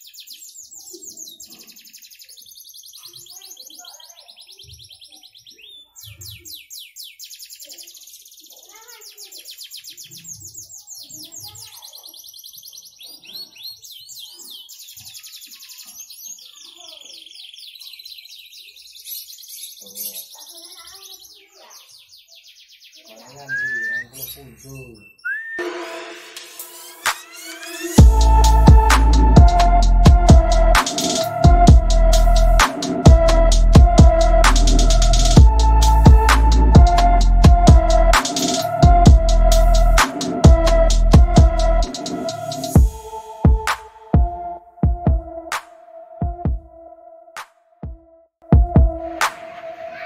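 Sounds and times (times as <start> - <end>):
canary singing trills: 0.0 - 25.6.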